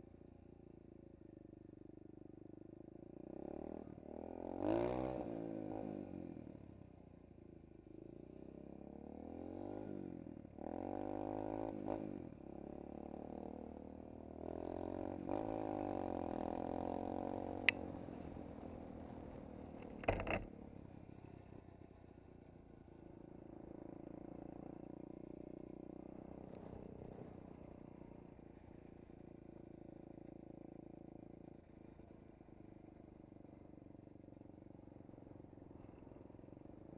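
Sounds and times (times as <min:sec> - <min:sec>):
motorbike engine revving: 0:19.8 - 0:20.5.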